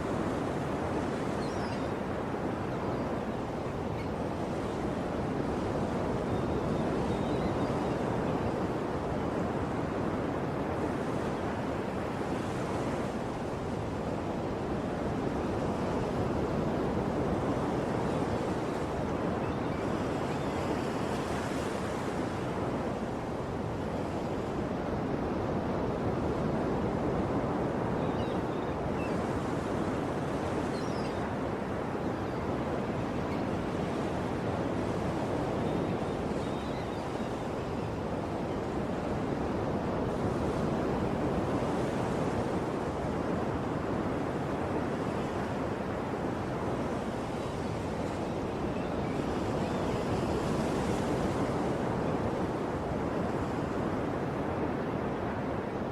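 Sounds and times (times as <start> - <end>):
waves washing onto shore: 0.0 - 55.9
faint bird chirps: 1.3 - 2.0, 30.7 - 31.3.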